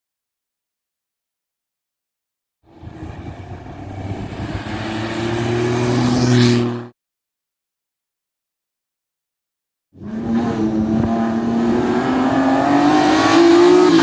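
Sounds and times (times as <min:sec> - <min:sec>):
rally car engine approaching: 0:02.7 - 0:06.9.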